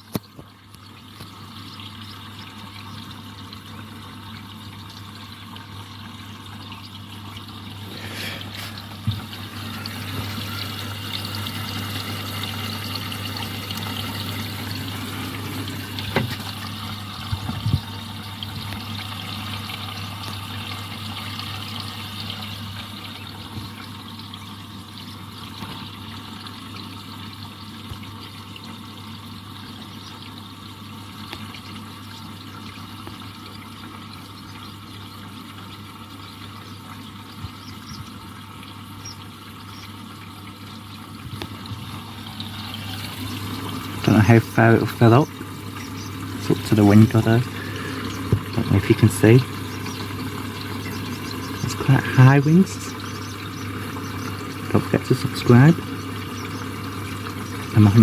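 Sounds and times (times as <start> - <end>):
washing machine filling with water: 0.0 - 58.0
steady low hum: 35.8 - 58.0.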